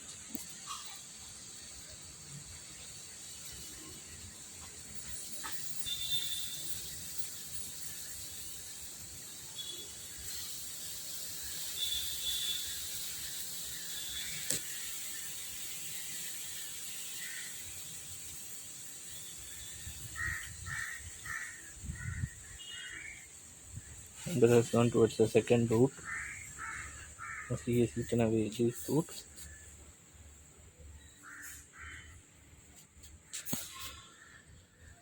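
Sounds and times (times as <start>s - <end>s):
outdoor background hiss: 0.0s - 35.0s
crows cawing: 17.2s - 17.6s, 20.1s - 23.3s, 25.9s - 27.8s, 31.2s - 32.2s.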